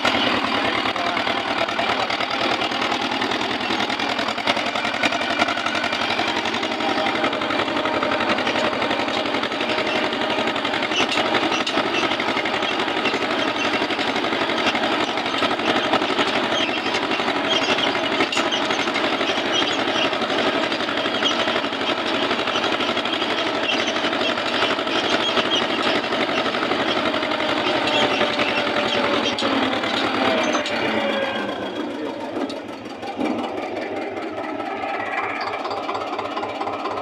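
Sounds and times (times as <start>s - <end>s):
tractor diesel engine clattering: 0.0s - 37.0s.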